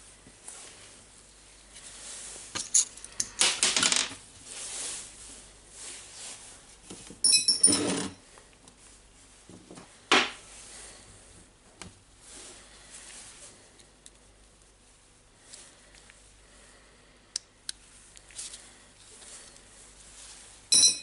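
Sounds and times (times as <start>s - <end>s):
small metal parts clinking: 2.6s - 4.0s, 7.2s - 8.0s, 20.7s - 21.0s.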